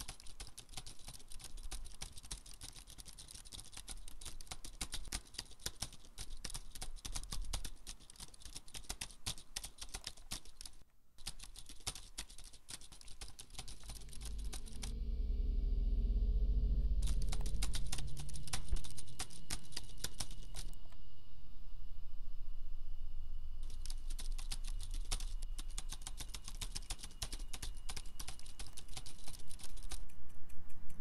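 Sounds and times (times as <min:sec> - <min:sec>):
fast typing on laptop keyboard: 0:00.0 - 0:14.8, 0:17.0 - 0:20.8, 0:23.6 - 0:31.0
low steady hum: 0:10.7 - 0:31.0.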